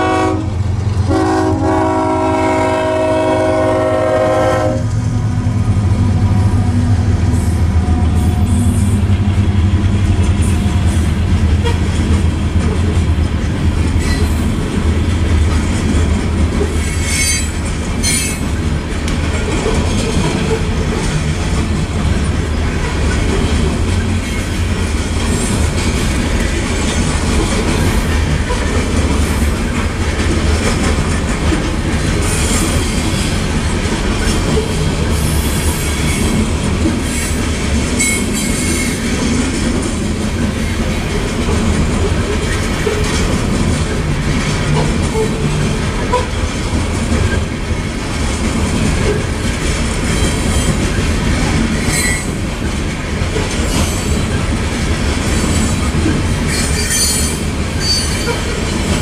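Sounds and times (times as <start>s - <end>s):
freight train rumbling past: 0.0s - 59.0s
wheels clacking over rail joints: 9.0s - 59.0s
high wheel squeal: 56.5s - 58.4s.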